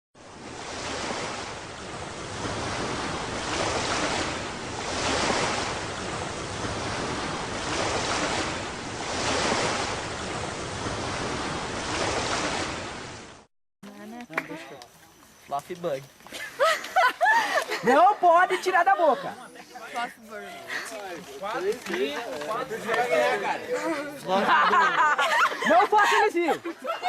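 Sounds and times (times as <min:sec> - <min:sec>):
rushing noise like surf: 0:00.2 - 0:13.5.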